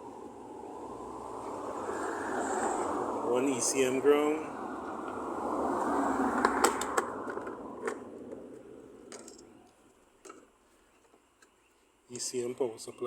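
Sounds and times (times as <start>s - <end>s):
rushing noise: 0.0s - 7.8s.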